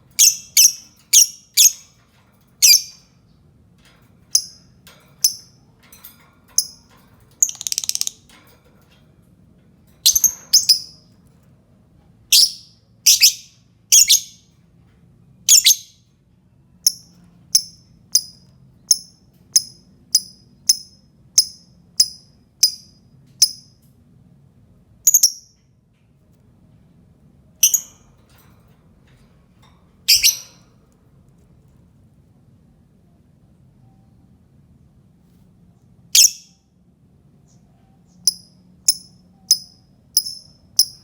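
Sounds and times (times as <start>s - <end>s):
lovebird chirping: 0.2s - 1.9s, 2.6s - 3.1s, 7.4s - 8.2s, 10.0s - 11.0s, 12.3s - 14.4s, 15.5s - 16.0s, 27.6s - 28.0s, 30.1s - 30.6s, 36.2s - 36.6s.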